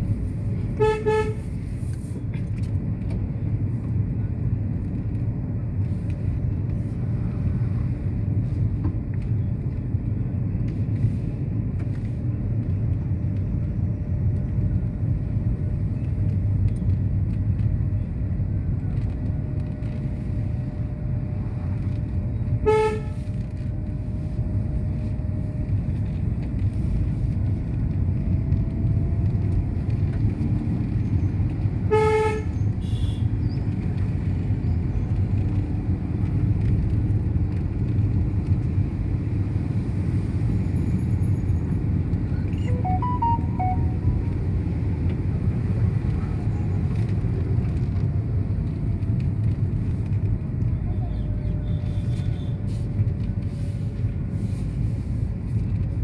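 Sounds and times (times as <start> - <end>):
low road vehicle rumble: 0.0 - 56.0
vehicle horn honks: 0.8 - 1.5, 22.6 - 23.3, 31.9 - 33.2, 42.6 - 44.3.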